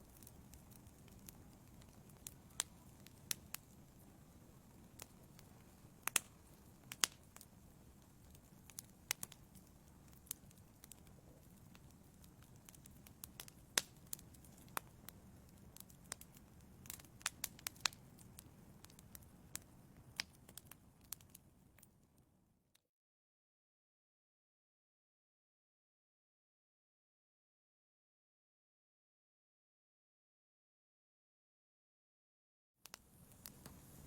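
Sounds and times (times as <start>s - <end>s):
fire low rumble: 0.0s - 21.8s, 33.0s - 34.0s
wood fire crackling and popping: 0.0s - 22.0s, 32.8s - 34.0s.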